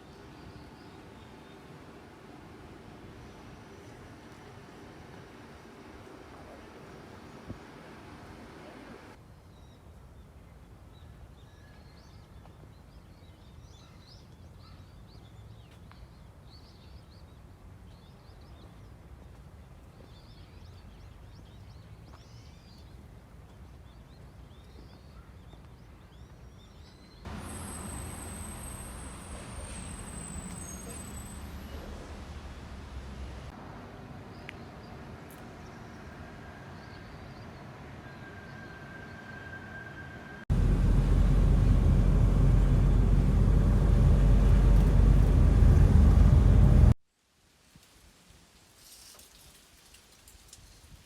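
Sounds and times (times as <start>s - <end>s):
small birds chirping: 23.8s - 32.3s
low outdoor rumble: 27.3s - 36.9s, 40.5s - 47.0s.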